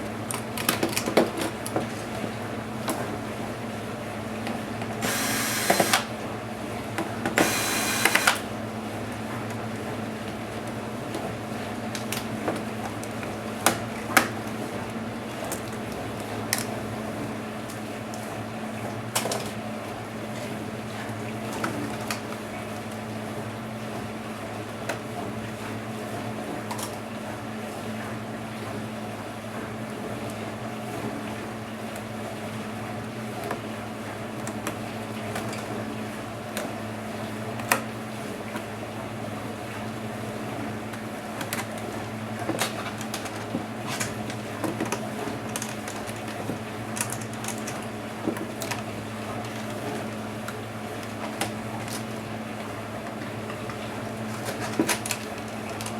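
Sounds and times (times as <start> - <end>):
clicks of laptop parts handled: 42.5 - 48.8.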